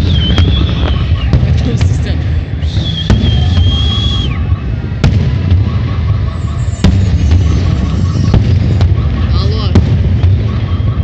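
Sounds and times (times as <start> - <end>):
high falling whistle: 0.0 - 1.4, 2.5 - 4.8
fireworks bursting: 0.0 - 11.0
fireworks sharp bangs: 0.0 - 11.0.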